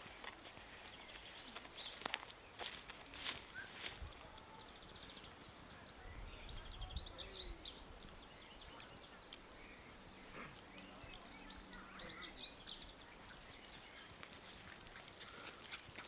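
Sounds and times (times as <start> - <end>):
faint outdoor ambience: 0.0 - 16.0
bird chirps: 3.5 - 16.0.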